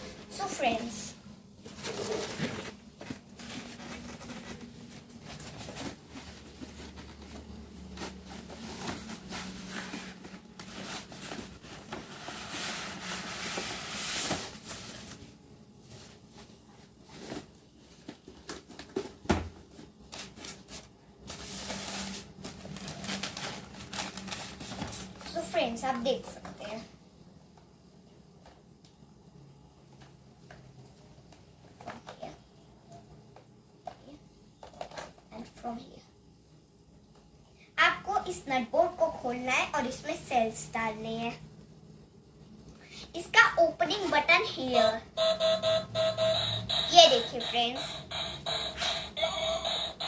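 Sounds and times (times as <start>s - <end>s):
packaging crinkling: 21.4s - 25.3s.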